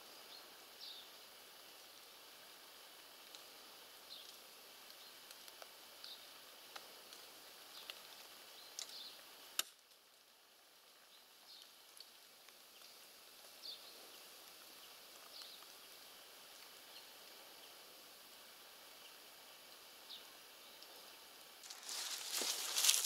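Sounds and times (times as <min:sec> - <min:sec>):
small birds chirping: 0:00.1 - 0:01.2, 0:04.0 - 0:06.5, 0:07.1 - 0:09.3, 0:10.9 - 0:23.0.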